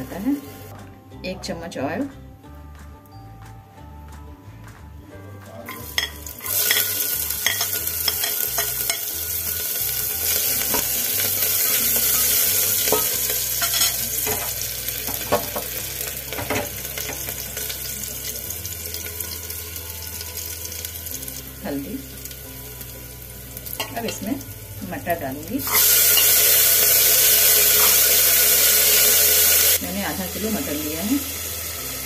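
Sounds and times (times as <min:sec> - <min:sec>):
spoon scraping and knocking pot: 0:05.7 - 0:09.2
garlic sizzling in hot oil: 0:05.7 - 0:32.0.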